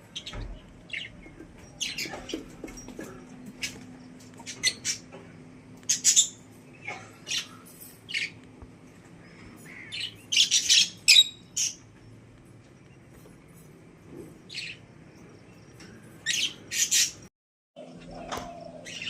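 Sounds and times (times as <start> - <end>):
budgerigars chirping and squawking: 4.4 - 5.1, 5.8 - 8.4, 9.4 - 11.8, 16.2 - 17.2.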